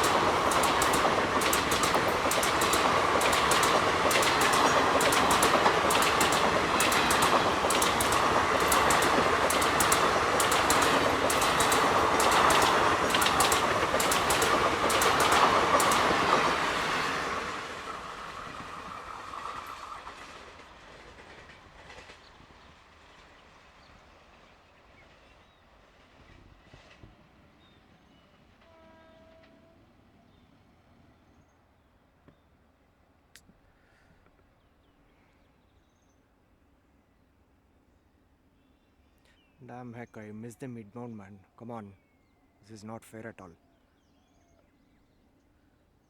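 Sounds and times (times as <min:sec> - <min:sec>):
train wheels clicking over rail joints: 0:00.0 - 0:22.5
passing train rushing noise: 0:00.0 - 0:28.6.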